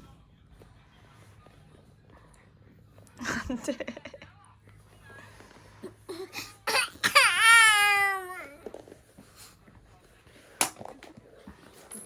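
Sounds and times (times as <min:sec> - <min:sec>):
baby crying: 0:06.7 - 0:08.6.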